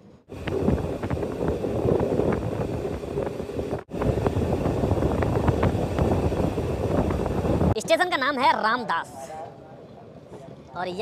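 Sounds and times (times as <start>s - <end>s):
train rumbling: 0.0s - 7.8s
air rushing past microphone: 0.3s - 7.8s.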